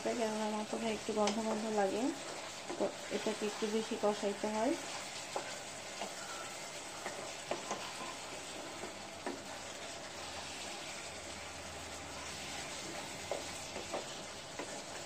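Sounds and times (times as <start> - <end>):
curry sizzling in a pan: 0.0 - 15.0
spatula tapping and scraping pan: 2.3 - 2.9, 4.9 - 9.6, 12.5 - 15.0.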